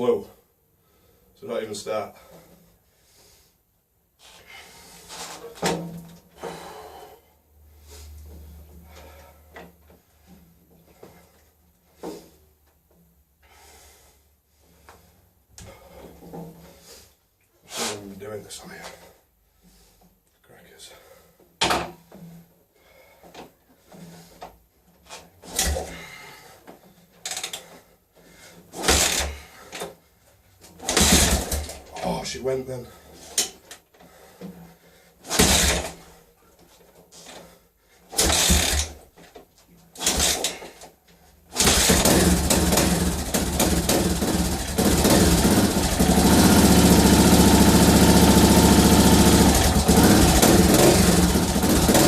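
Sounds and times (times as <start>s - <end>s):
kickstart mechanical clunks: 28.8s - 29.4s, 30.8s - 31.8s, 35.3s - 36.0s, 38.2s - 39.0s, 40.0s - 40.7s, 41.5s - 52.0s.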